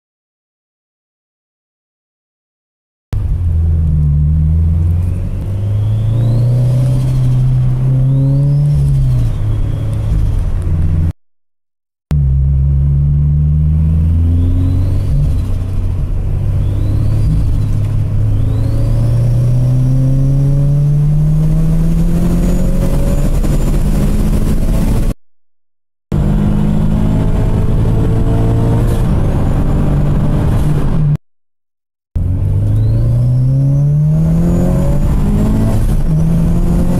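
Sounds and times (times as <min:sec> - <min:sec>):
car engine revving: 0:03.2 - 0:11.1, 0:12.1 - 0:25.2, 0:26.1 - 0:31.2, 0:32.2 - 0:36.9
turbo whistle: 0:05.4 - 0:06.8, 0:14.3 - 0:15.5.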